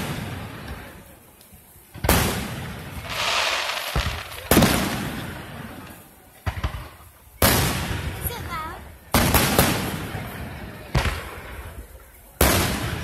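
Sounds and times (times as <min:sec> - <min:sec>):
fireworks booms with echo: 0:00.0 - 0:13.0
sharp cracks: 0:01.4 - 0:05.3.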